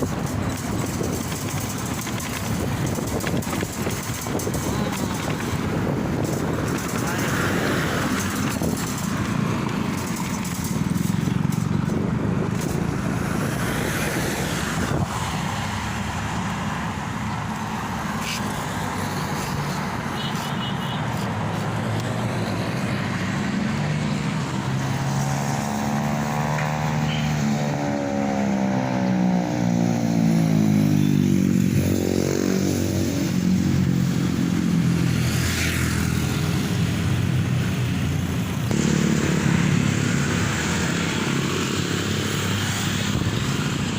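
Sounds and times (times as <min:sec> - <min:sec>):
motorcycle engine running: 0:00.0 - 0:13.7, 0:36.0 - 0:43.9.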